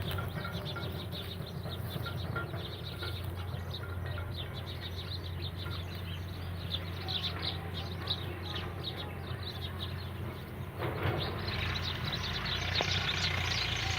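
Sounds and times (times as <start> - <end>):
small birds chirping: 0.0 - 13.9.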